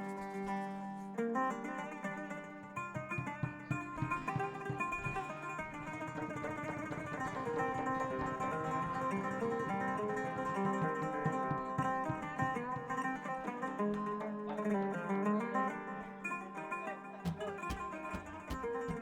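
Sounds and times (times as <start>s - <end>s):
plucked string melody: 0.0s - 19.0s
low drum strikes: 17.3s - 19.0s.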